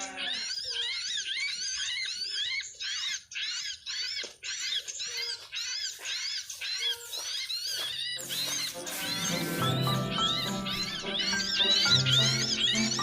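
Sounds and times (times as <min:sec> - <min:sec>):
small birds chirping: 0:00.0 - 0:13.0
background music: 0:08.2 - 0:13.0.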